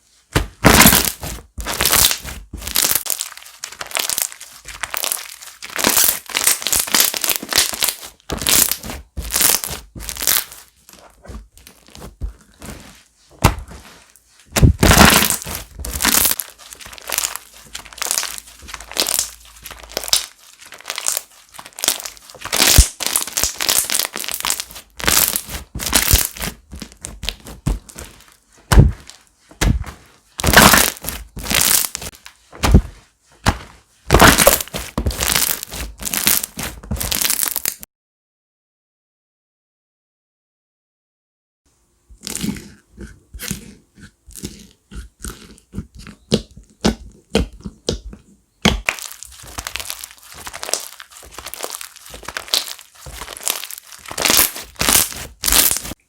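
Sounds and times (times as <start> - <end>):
slime crackling and popping: 0.6 - 12.7, 14.5 - 29.8, 30.4 - 32.9, 34.1 - 37.8, 48.6 - 56.0.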